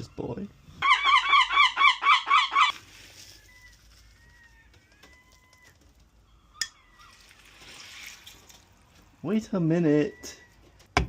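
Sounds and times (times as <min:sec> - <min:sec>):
gull calling: 0:00.8 - 0:02.8.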